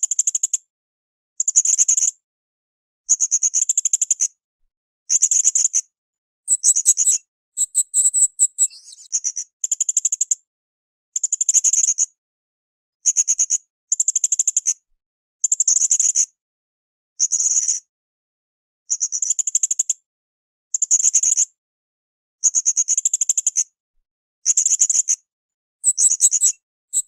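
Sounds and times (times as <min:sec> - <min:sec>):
parrot high-pitched calls: 0:06.5 - 0:09.1.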